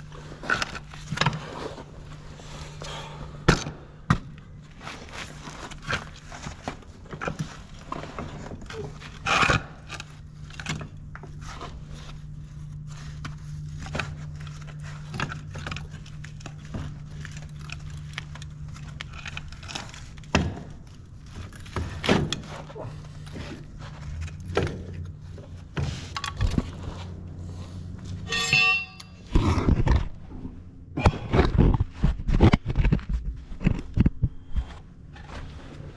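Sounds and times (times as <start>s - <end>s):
low hum: 0.0s - 35.9s
metallic clanks of tools: 28.2s - 29.2s.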